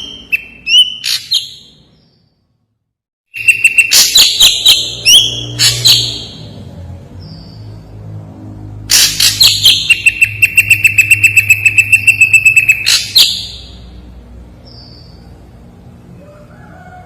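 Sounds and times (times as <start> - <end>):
bird singing harsh rapid notes: 0.0 - 2.4, 3.3 - 8.0, 8.9 - 14.0.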